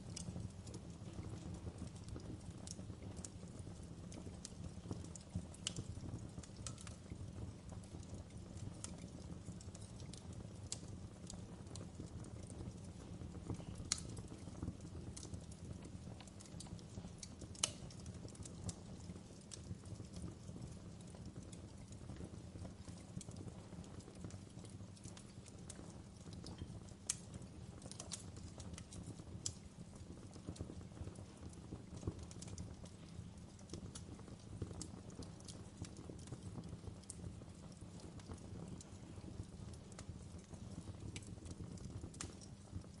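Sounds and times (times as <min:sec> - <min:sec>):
fire crackling and popping: 0:00.0 - 0:43.0
fire low rumble: 0:00.0 - 0:43.0.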